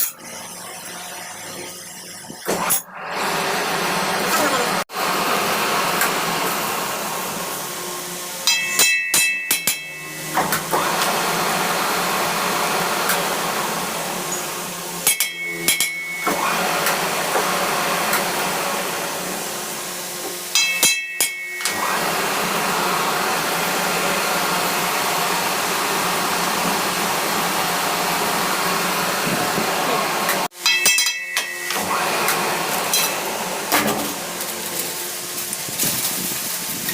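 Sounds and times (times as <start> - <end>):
power tool whirring: 0.0 - 8.4, 10.1 - 15.0, 21.6 - 30.5.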